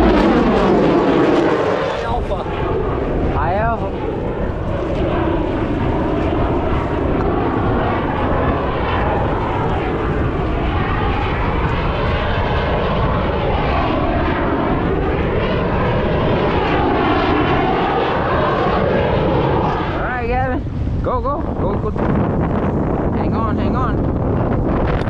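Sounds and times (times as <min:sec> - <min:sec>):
airplane flying past: 0:00.0 - 0:25.0.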